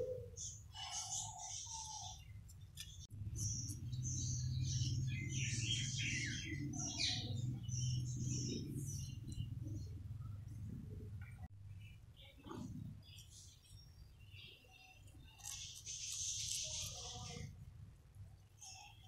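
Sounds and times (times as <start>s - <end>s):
small birds chirping: 0.0s - 17.6s, 18.5s - 19.0s
steady low hum: 2.2s - 14.2s.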